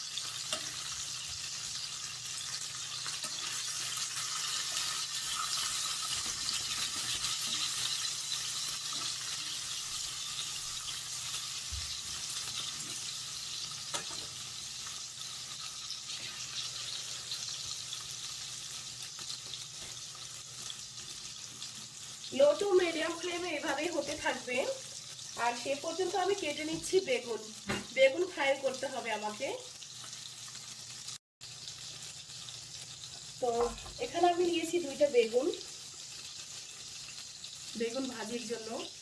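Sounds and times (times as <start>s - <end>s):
fish sizzling in oil: 0.0s - 39.0s.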